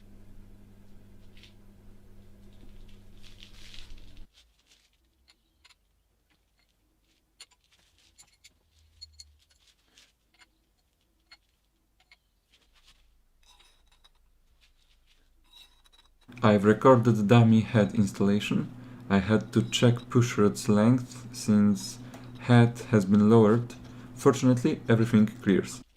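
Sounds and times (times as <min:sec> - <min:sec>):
steady hum: 0:00.0 - 0:04.3, 0:13.4 - 0:25.9
metal engine parts clicking and tapping: 0:07.4 - 0:09.7, 0:10.3 - 0:12.3, 0:13.4 - 0:14.3, 0:15.4 - 0:16.3.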